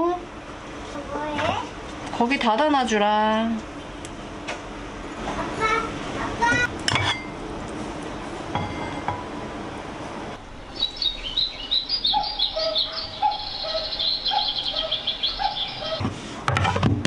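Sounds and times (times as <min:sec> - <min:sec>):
bird chirps and trills: 0:10.6 - 0:16.0.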